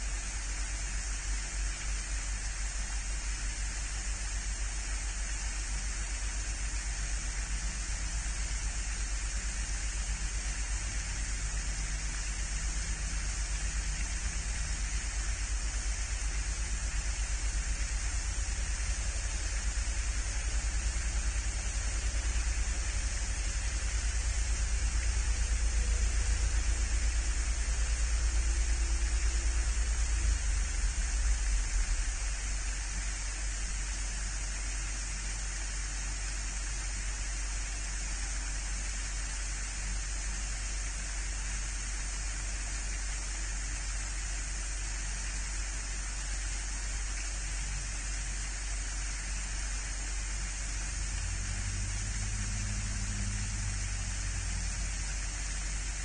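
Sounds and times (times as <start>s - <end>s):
outdoor background hiss: 0.0s - 56.0s
low rumble: 6.8s - 34.5s, 50.4s - 56.0s.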